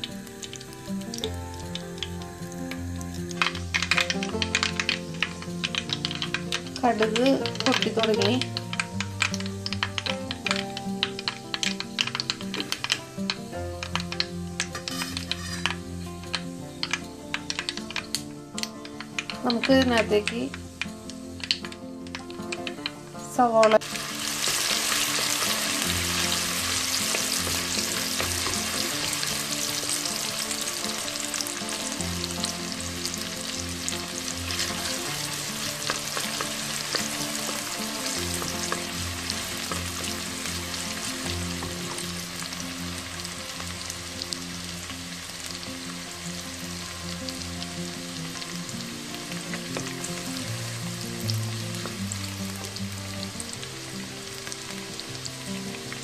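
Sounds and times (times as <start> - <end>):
onion sizzling in hot oil: 0.0 - 56.0
wooden spoon stirring: 13.8 - 15.8.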